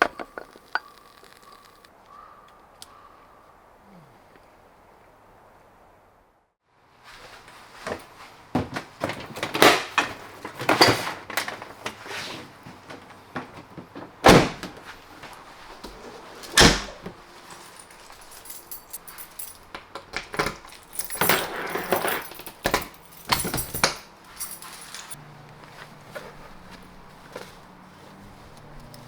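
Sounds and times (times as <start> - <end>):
metallic clinks and rattles: 17.2 - 25.2.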